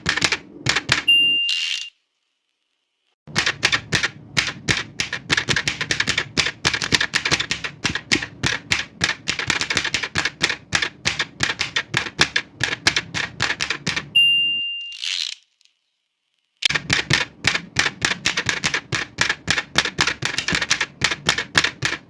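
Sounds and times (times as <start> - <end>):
manual typewriter key strikes: 0.0 - 1.2, 3.3 - 14.2, 16.6 - 22.0.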